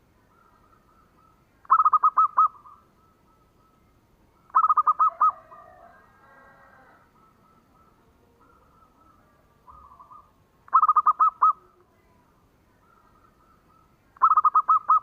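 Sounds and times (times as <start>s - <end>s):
dove cooing: 0.0s - 3.8s, 4.4s - 11.9s, 12.7s - 15.0s
faint chattering: 6.8s - 15.0s.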